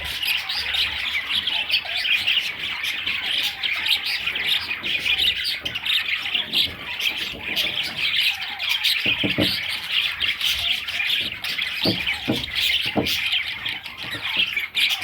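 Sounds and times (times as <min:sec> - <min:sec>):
budgerigars chirping: 0:00.0 - 0:15.0
soft knocks: 0:09.0 - 0:09.9, 0:10.5 - 0:13.4.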